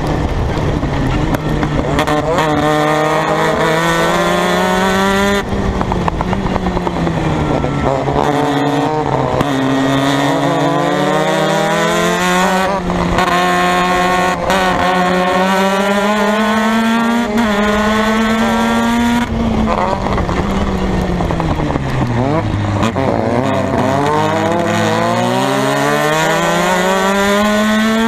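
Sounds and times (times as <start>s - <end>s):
race car engine revving: 0.0s - 28.0s.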